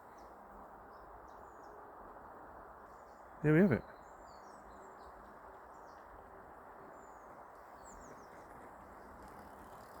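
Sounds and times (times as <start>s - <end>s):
distant bird chirps: 2.8s - 10.0s.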